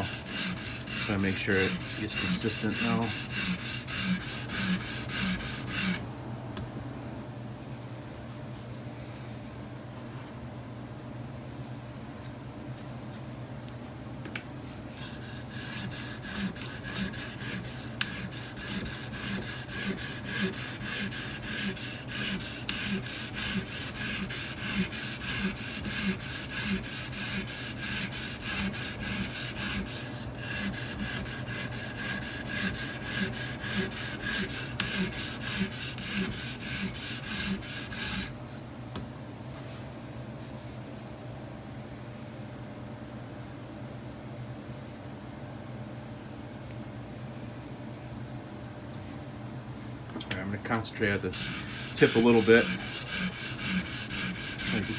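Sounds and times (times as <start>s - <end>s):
sharpening stone rasping on knife blade: 0.0s - 6.0s, 15.0s - 38.3s, 51.4s - 54.9s.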